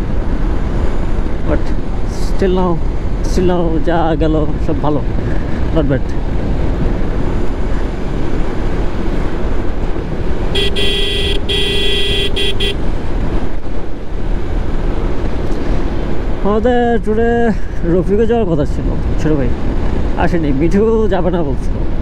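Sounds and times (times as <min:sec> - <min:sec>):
wind and motorcycle road noise: 0:00.0 - 0:22.0
vehicle horn blasts: 0:10.5 - 0:12.8.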